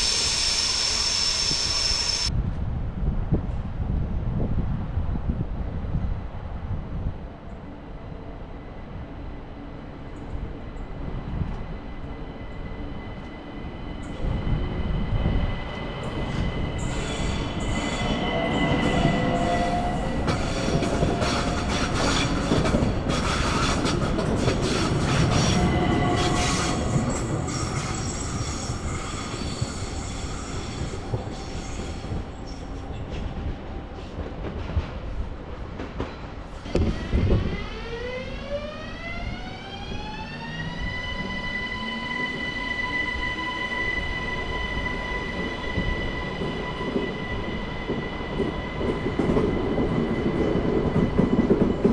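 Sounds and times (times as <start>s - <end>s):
high-pitched wheel squeal: 0.0s - 2.3s
electric train passing: 0.0s - 2.4s, 7.8s - 32.8s, 35.7s - 51.9s.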